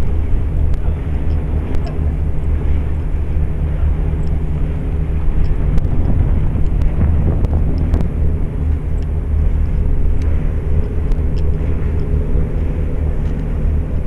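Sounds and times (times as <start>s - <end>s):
ship engine drone: 0.0s - 14.0s
light ticks: 0.7s - 2.0s, 4.2s - 12.3s, 13.2s - 13.6s.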